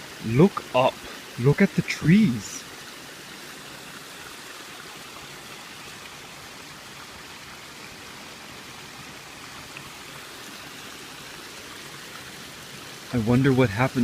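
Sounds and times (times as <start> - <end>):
babbling brook: 0.0 - 14.0.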